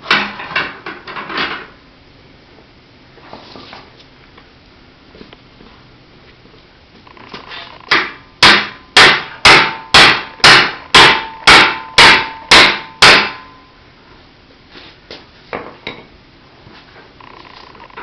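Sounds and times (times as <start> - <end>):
tire iron striking metal: 0.0 - 1.6, 7.9 - 13.7.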